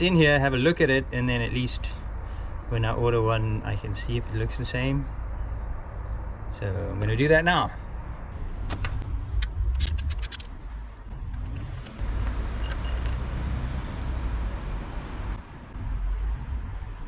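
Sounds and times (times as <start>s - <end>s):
socket ratchet clicking: 9.4s - 10.5s.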